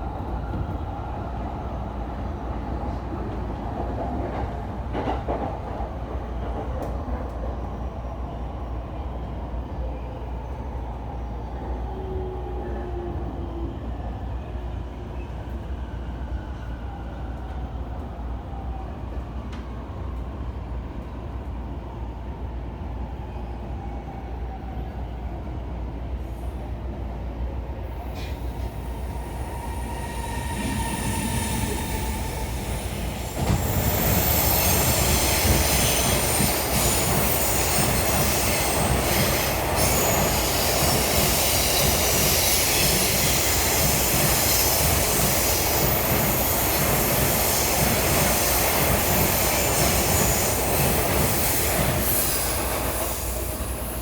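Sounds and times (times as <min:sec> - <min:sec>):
train wheel and rail noise: 0:00.0 - 0:54.0
wheels squealing on rails: 0:28.2 - 0:54.0.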